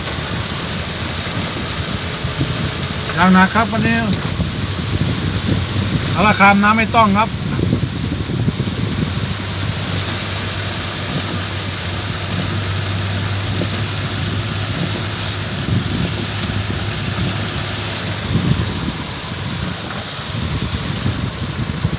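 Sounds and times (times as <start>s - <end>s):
heavy rain pouring: 0.0s - 21.9s
steady low hum: 13.7s - 21.9s.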